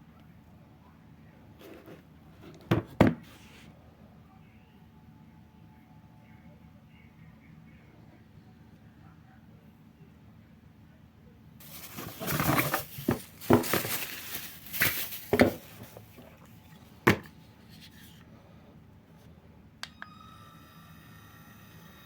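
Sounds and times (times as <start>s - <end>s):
faint steady whine: 3.4s - 22.0s
packaging rustling and crinkling: 11.6s - 18.2s.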